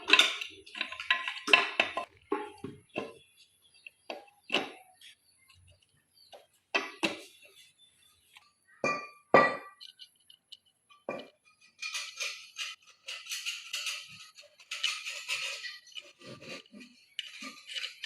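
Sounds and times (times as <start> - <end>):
metal tools clinking: 11.4 - 18.0
rattling scrape: 11.5 - 18.0.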